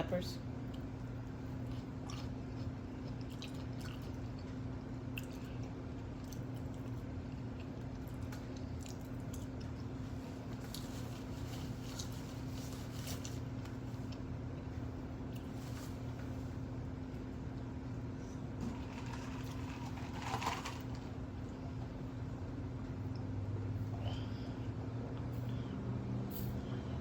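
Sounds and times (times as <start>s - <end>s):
steady low hum: 0.0s - 27.0s
wet chewing and mouth sounds: 0.6s - 15.7s.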